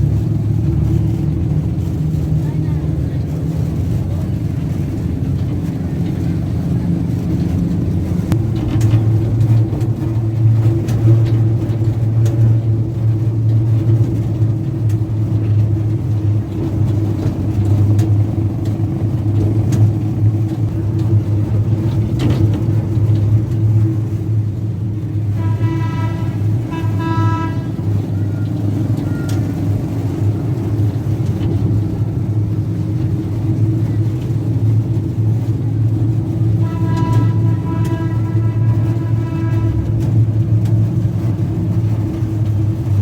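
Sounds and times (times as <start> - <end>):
truck engine humming: 0.0 - 43.0
horn tooting: 25.1 - 29.7, 36.5 - 40.5.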